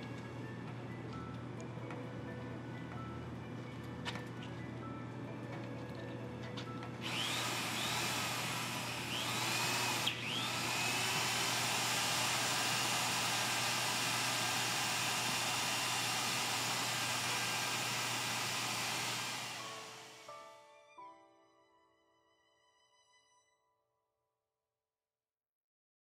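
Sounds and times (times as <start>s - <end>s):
drill squeals: 7.0s - 20.3s
electric drill grinding: 7.0s - 20.4s.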